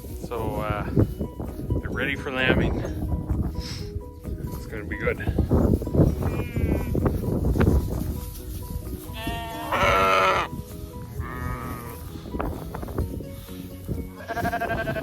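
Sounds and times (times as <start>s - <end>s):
sheep bleating: 6.2s - 7.0s, 9.1s - 10.5s, 14.2s - 15.0s.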